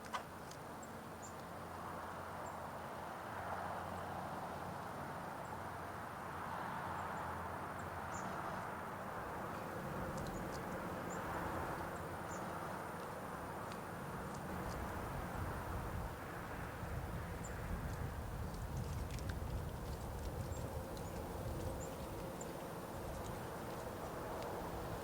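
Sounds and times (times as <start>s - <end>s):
outdoor background rumble: 0.0s - 25.0s
small birds calling: 20.2s - 25.0s.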